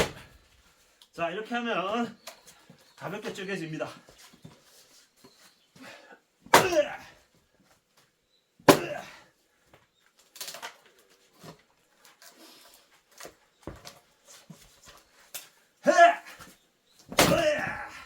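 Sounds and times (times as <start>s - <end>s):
axe splitting firewood: 0.0s - 0.3s, 6.5s - 7.1s, 8.6s - 9.2s, 15.3s - 18.0s
split wood pieces knocking: 17.0s - 18.0s.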